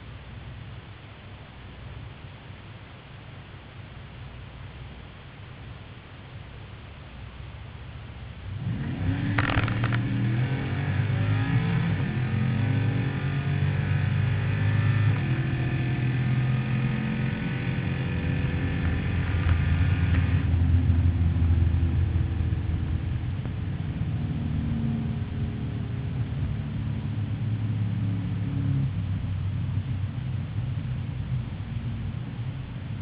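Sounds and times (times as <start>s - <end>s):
drag racing engine at full throttle: 8.4s - 33.0s.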